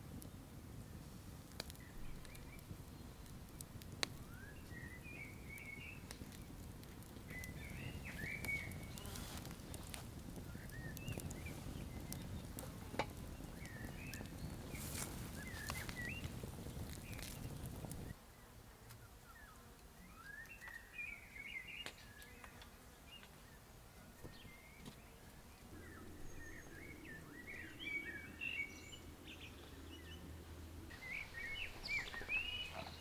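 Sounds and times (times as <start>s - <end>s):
wood fire crackling: 0.0s - 18.2s, 25.2s - 33.0s
small birds chirping: 0.1s - 18.2s, 19.0s - 33.0s
steady low rumble: 25.7s - 32.8s.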